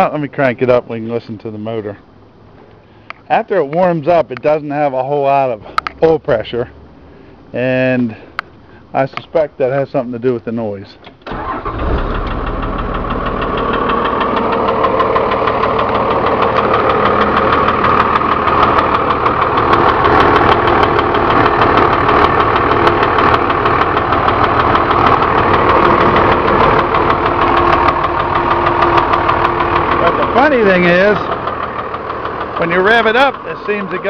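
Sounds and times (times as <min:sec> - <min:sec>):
diesel engine idling: 0:00.0 - 0:34.0
fast engine knocking: 0:12.3 - 0:34.0.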